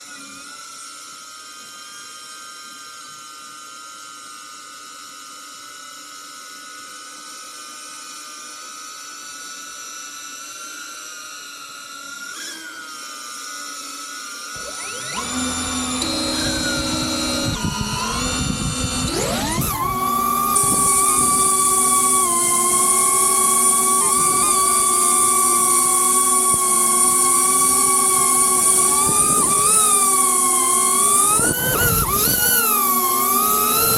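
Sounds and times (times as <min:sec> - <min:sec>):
drone propellers whining: 0:14.5 - 0:33.9.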